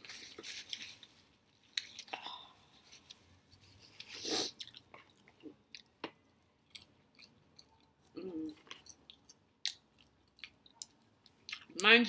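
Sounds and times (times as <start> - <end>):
person chewing crunchy food: 3.8 - 11.8.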